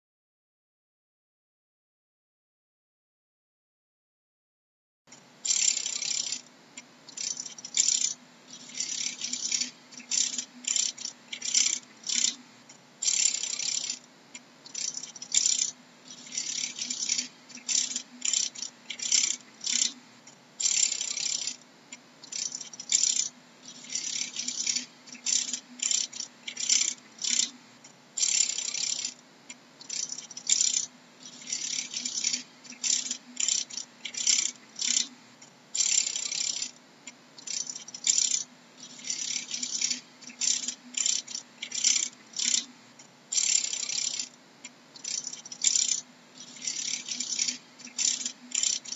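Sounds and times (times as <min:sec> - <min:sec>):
faint low hum: 0:05.1 - 0:48.9.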